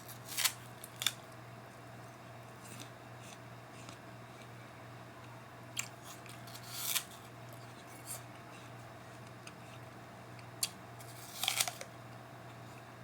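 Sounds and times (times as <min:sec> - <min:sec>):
person crunching an apple: 0:00.0 - 0:01.2, 0:05.8 - 0:08.2, 0:10.6 - 0:11.9
low steady hum: 0:00.0 - 0:13.0.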